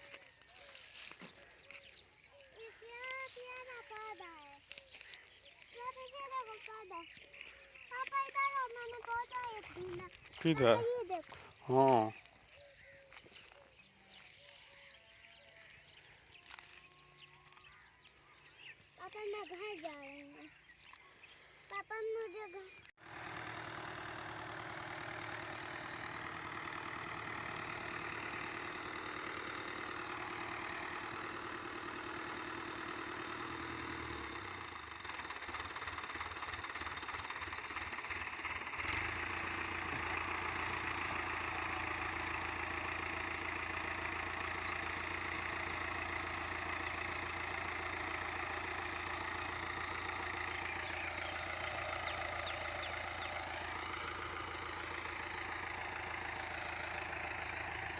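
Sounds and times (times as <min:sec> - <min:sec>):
engine throbbing: 0:22.7 - 0:57.9.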